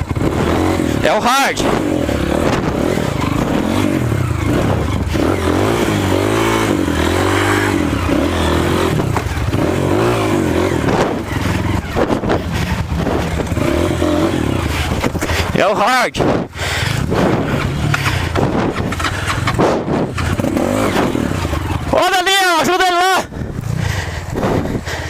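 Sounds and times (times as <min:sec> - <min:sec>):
motorcycle engine revving: 0:00.0 - 0:25.0
knocks and scrapes: 0:10.8 - 0:13.9, 0:16.2 - 0:21.9.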